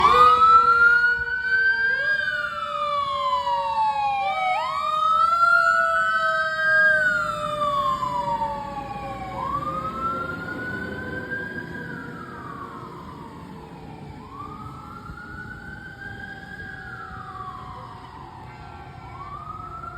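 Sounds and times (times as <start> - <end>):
fire engine mechanical siren wailing: 0.0 - 19.9.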